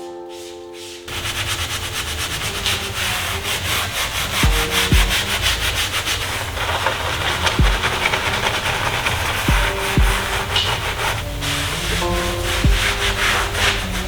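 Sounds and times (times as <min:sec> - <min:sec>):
brush scrubbing surfaces: 0:00.0 - 0:14.0.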